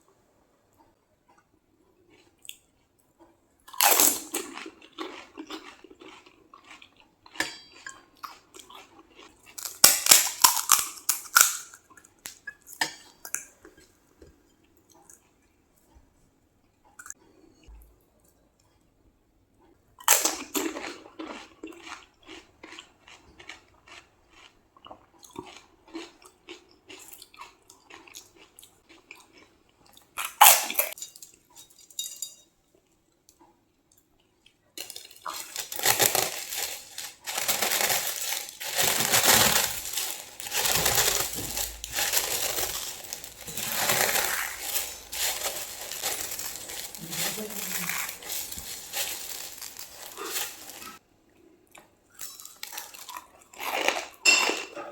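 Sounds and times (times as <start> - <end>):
crunching and chewing food: 0.8 - 18.9, 19.5 - 31.7, 32.7 - 54.9
crinkling: 9.3 - 11.8, 34.8 - 51.0.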